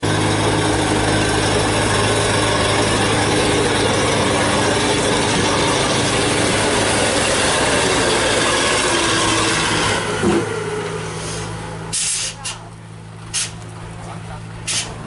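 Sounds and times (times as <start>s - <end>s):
truck diesel engine under load: 0.0s - 15.0s.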